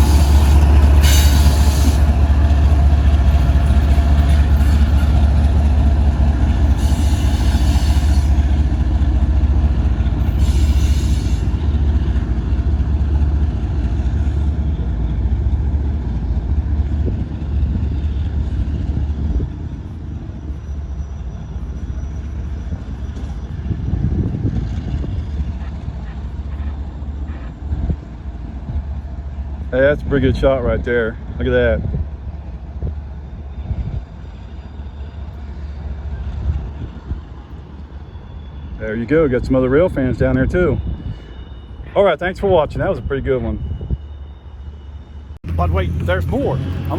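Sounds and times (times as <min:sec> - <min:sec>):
freight train cars rolling: 0:00.0 - 0:46.9.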